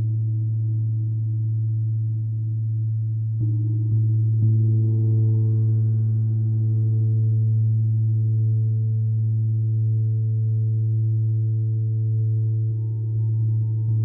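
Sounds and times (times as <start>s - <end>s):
gong low hum with ringing overtones: 0.0s - 14.0s.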